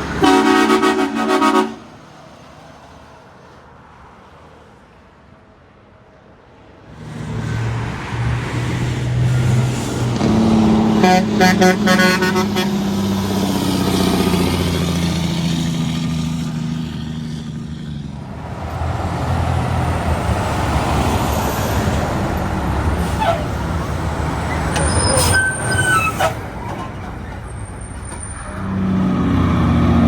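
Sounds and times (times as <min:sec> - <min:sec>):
truck passing close by: 0:00.0 - 0:03.6, 0:06.8 - 0:30.0
truck horn short blasts: 0:00.2 - 0:02.0, 0:11.0 - 0:12.8
vehicle approaching: 0:06.9 - 0:30.0.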